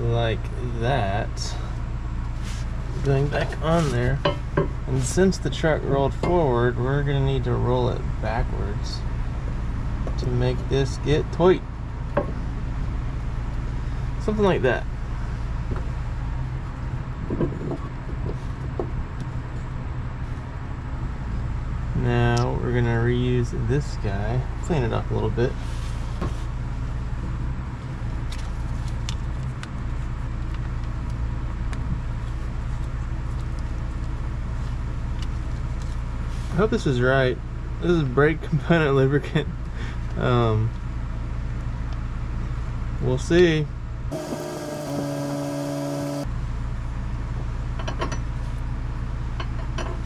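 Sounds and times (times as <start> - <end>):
multi-pitched whine: 44.1 - 46.2.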